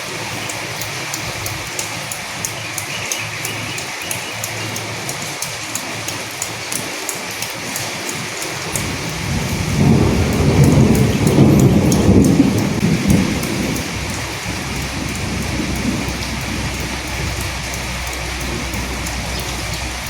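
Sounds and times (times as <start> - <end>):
steady rain falling: 0.0 - 20.0
thunder rumbling: 8.7 - 20.0.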